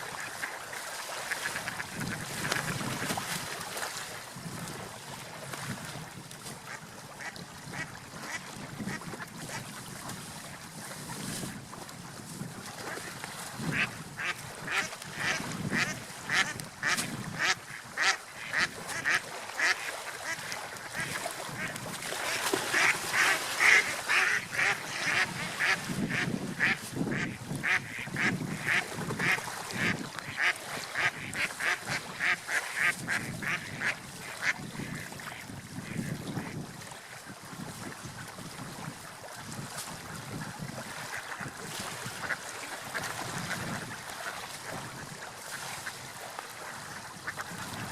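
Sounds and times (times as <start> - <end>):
ducks quacking: 13.7 - 35.2, 35.9 - 36.6, 42.1 - 44.4.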